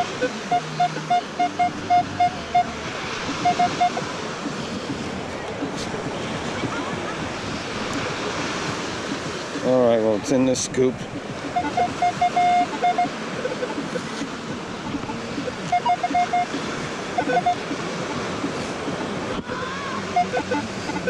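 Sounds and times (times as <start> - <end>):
metal detector beeping: 0.0 - 4.0, 11.4 - 18.2, 19.5 - 21.0
surf: 0.0 - 21.0
wind: 0.0 - 21.0.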